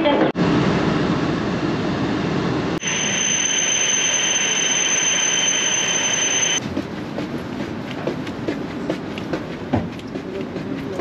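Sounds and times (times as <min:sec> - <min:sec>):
high-pitched train whine: 0:00.4 - 0:06.6
train carriage rumble: 0:05.0 - 0:11.0
train noise with clicks: 0:06.2 - 0:11.0.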